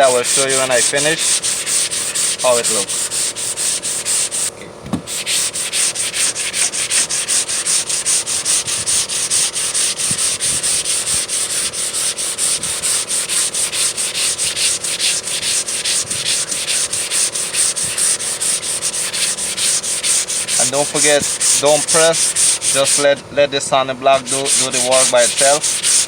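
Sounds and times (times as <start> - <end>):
sandpaper rasping on putty: 0.0 - 4.5, 5.1 - 23.2, 24.1 - 26.0.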